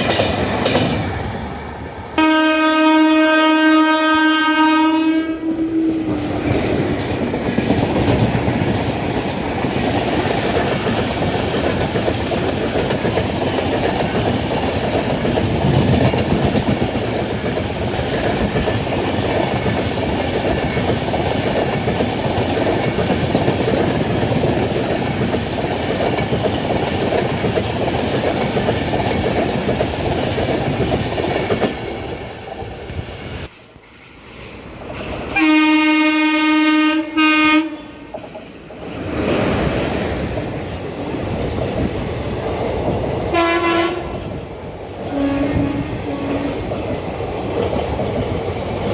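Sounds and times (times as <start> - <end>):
train wheels clattering: 0.0 - 2.0, 6.0 - 33.5
train horn: 2.2 - 6.4, 35.4 - 38.2, 43.3 - 44.4, 45.0 - 46.7.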